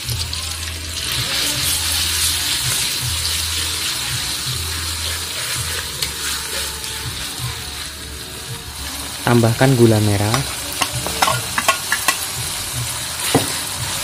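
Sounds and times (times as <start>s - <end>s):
paste sizzling in hot oil: 0.0s - 14.0s
spatula scraping and tapping metal: 10.3s - 12.3s.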